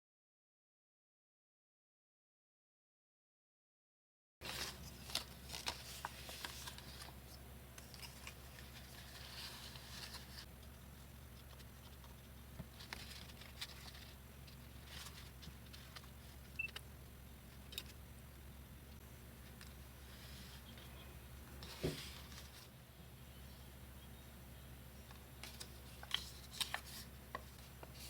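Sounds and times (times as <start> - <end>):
paper rustling and scraping: 4.4 - 16.5, 21.6 - 22.8, 25.1 - 28.0
faint low hum: 4.4 - 28.0.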